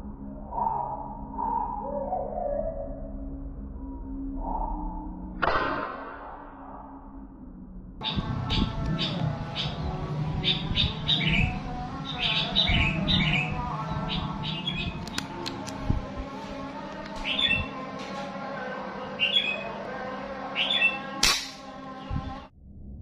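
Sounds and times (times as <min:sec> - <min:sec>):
sharp crack: 0:05.4 - 0:06.6, 0:21.2 - 0:21.7
songbird chirping: 0:08.0 - 0:22.5.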